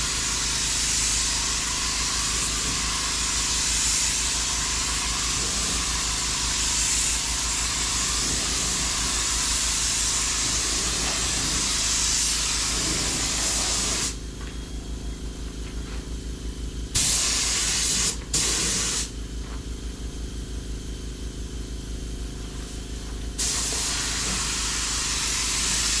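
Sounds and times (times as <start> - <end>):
spray gun hissing: 0.0 - 14.2, 17.0 - 19.1, 23.4 - 26.0
low pulsing machine hum: 0.0 - 26.0.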